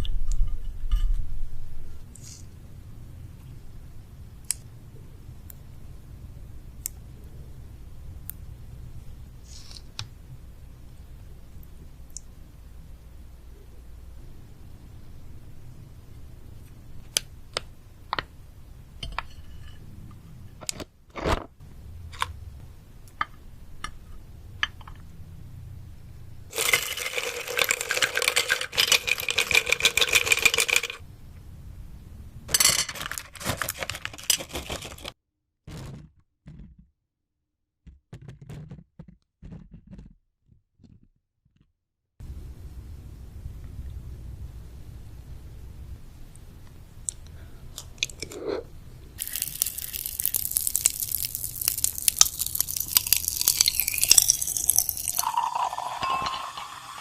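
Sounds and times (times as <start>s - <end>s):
chewing candy: 49.2s - 55.1s.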